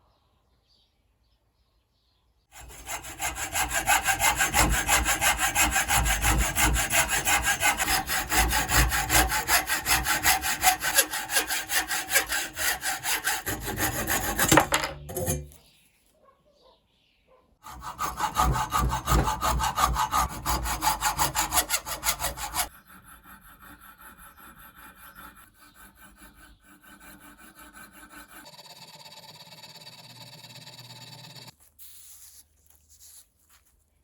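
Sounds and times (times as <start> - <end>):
hand saw cutting wood: 2.5 - 15.6, 17.6 - 31.6.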